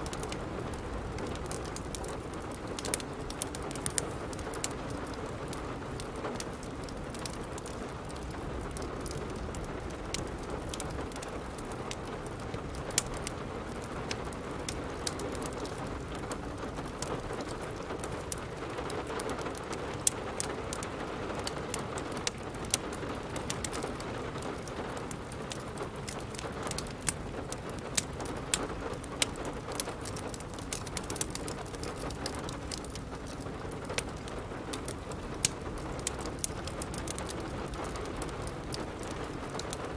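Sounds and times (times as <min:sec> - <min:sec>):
steady rain: 0:00.0 - 0:39.9
wood fire crackling: 0:00.0 - 0:39.9.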